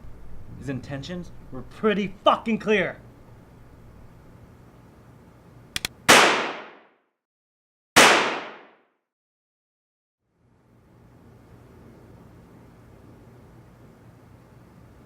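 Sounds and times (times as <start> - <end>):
quick clicks: 5.7 - 6.0
gunshots: 6.1 - 6.9, 8.0 - 8.8.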